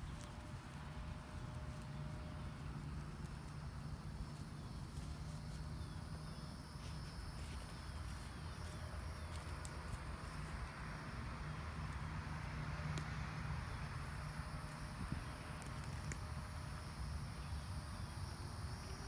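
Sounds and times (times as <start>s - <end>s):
insect buzz: 13.4s - 19.0s.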